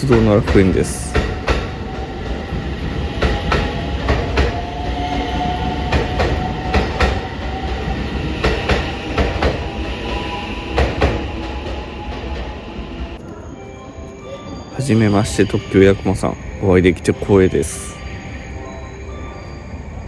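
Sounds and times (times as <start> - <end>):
train wheels clicking over rail joints: 0.0 - 4.6, 5.8 - 9.7, 10.7 - 11.4
train running rumble: 0.0 - 13.2.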